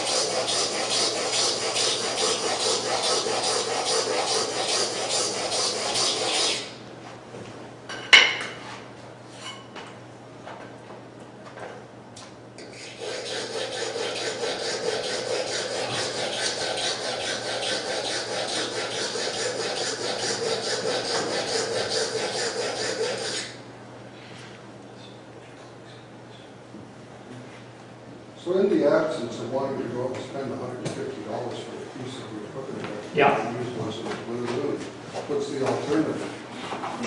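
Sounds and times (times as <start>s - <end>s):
chisel scraping on sharpening stone: 0.0s - 6.7s, 12.6s - 23.6s.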